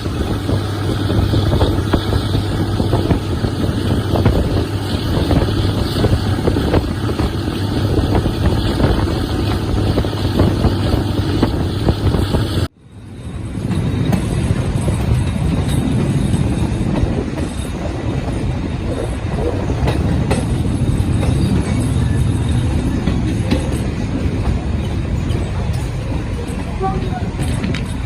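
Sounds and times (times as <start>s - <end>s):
wind on microphone: 0.0s - 12.7s
diesel train engine humming: 0.0s - 28.0s.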